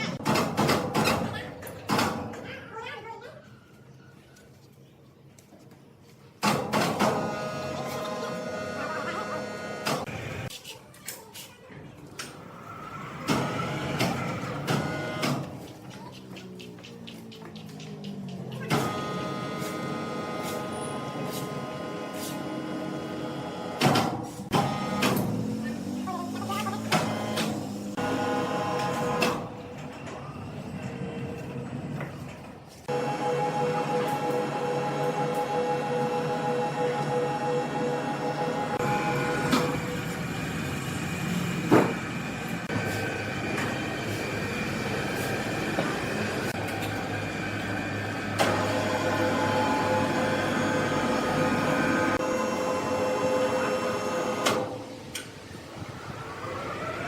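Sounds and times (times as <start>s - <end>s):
sawmill machinery whining: 12.3s - 15.4s, 24.6s - 29.6s, 32.9s - 57.0s.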